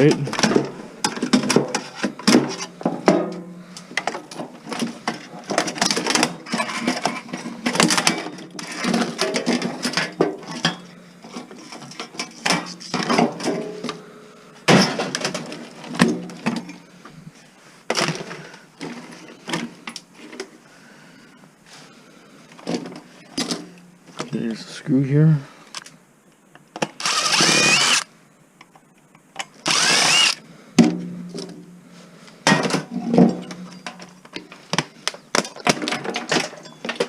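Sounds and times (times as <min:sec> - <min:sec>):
metal and plastic parts clattering: 0:00.0 - 0:14.0, 0:14.7 - 0:16.8, 0:32.4 - 0:37.0.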